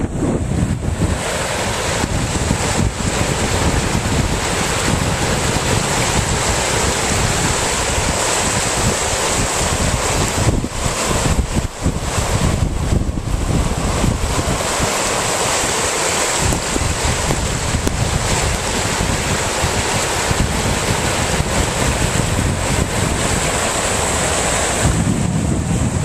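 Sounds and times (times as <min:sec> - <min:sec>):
floodwater rushing: 0:00.0 - 0:26.0
wind buffeting microphone: 0:00.0 - 0:26.0.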